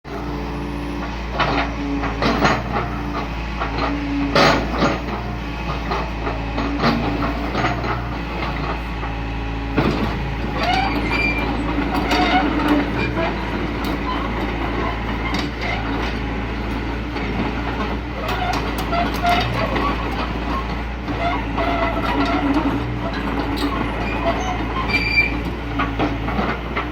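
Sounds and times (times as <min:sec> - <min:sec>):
diesel engine running: 0:00.1 - 0:26.9
metal clanks and knocks: 0:01.4 - 0:09.2, 0:09.8 - 0:26.9
short squeaks: 0:10.5 - 0:15.9, 0:21.2 - 0:26.0.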